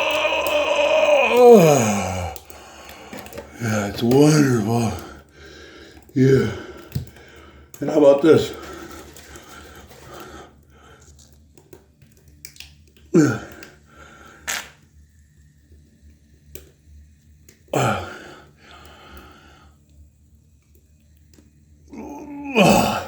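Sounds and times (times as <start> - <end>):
wordless vocal sounds falling in pitch: 0.0 - 2.4.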